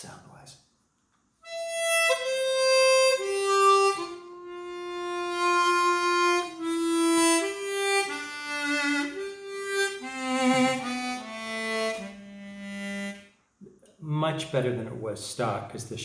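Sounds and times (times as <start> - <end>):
harmonica playing slow melody: 1.4 - 13.4.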